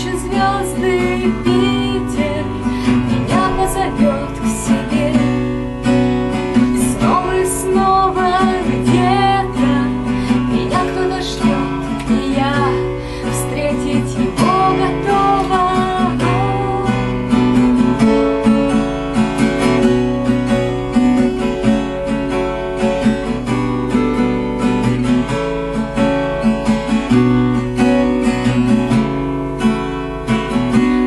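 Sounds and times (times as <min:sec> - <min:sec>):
person singing: 0:00.0 - 0:05.8, 0:06.4 - 0:17.5
acoustic guitar strumming chords: 0:00.0 - 0:31.0.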